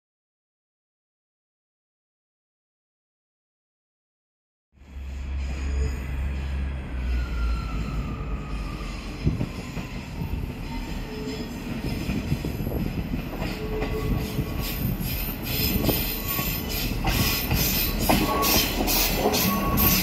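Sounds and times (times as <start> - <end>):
diesel train rumble: 4.8 - 20.0
wheels squealing on rails: 4.8 - 20.0
sharp clicking of train wheels: 11.6 - 20.0.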